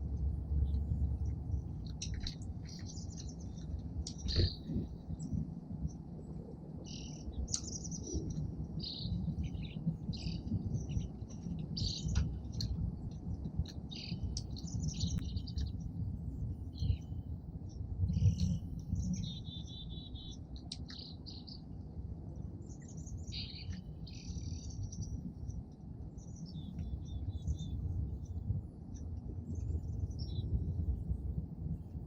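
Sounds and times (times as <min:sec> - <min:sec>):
low background rumble: 0:00.0 - 0:32.0
songbirds chirping: 0:00.0 - 0:32.0.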